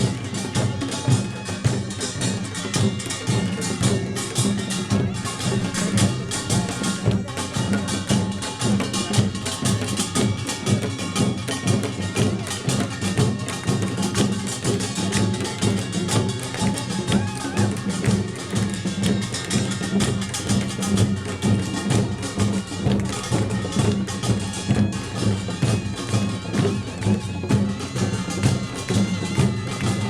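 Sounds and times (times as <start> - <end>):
drums playing fast rhythm: 0.0 - 30.0.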